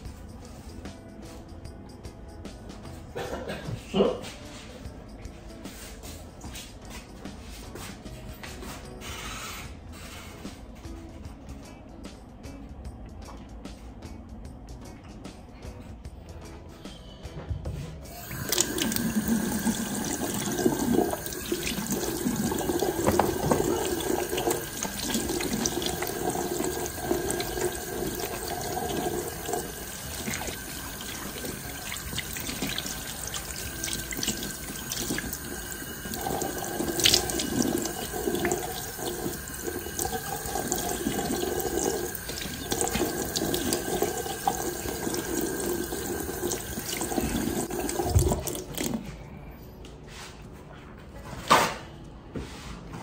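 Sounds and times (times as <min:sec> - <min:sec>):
tap water running into sink: 0:18.1 - 0:49.0.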